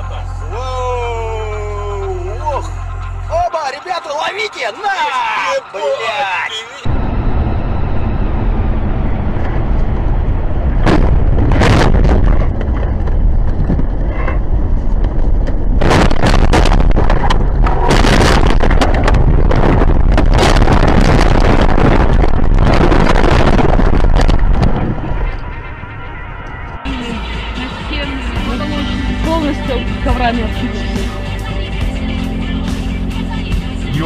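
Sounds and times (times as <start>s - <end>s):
vehicle rumbling: 0.0s - 34.0s
sudden sharp bangs: 6.9s - 13.8s, 15.6s - 26.9s
wind noise on microphone: 6.9s - 27.0s.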